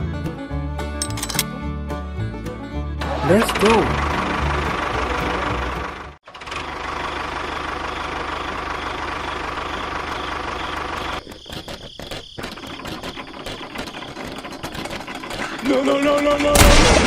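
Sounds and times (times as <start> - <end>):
small engine running: 3.2 - 11.2.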